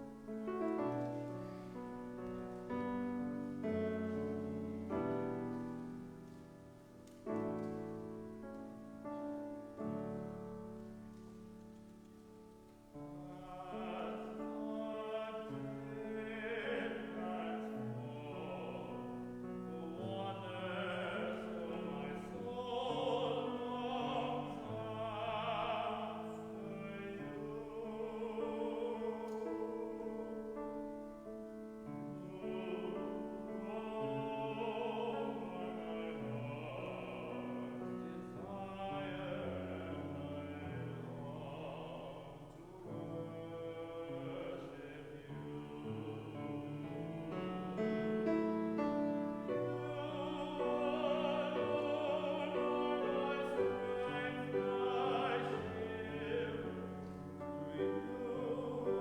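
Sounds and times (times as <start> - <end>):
piano accompaniment: 0.0 - 59.0.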